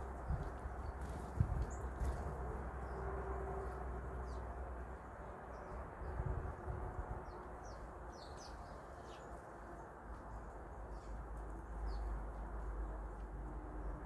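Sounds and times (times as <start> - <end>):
small birds chirping: 0.0 - 3.0, 7.1 - 13.5.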